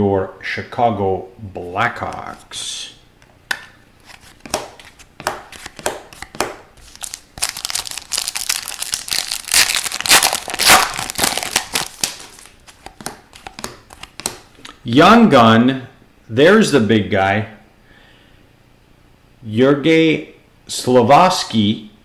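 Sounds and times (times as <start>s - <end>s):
foil wrapper crinkling and tearing: 6.8s - 14.1s.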